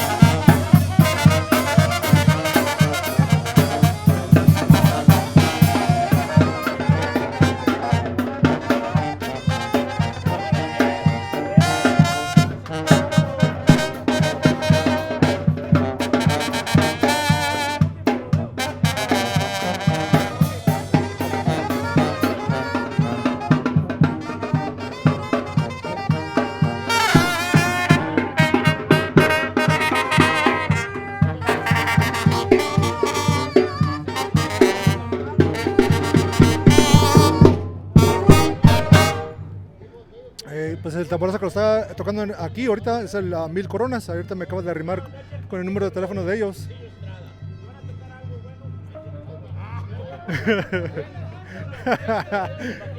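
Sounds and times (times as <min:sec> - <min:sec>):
bass drum beat: 0:00.0 - 0:39.6
brass melody: 0:00.0 - 0:39.8.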